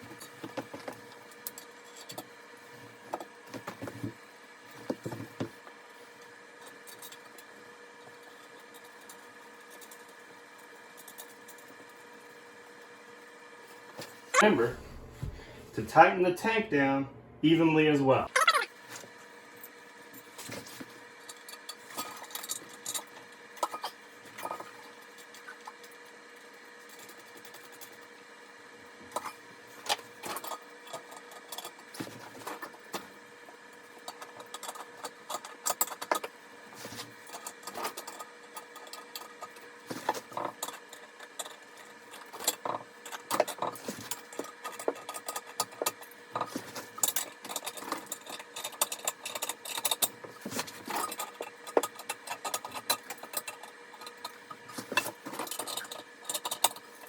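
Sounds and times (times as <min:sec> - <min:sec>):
faint hum: 0:14.0 - 0:20.1.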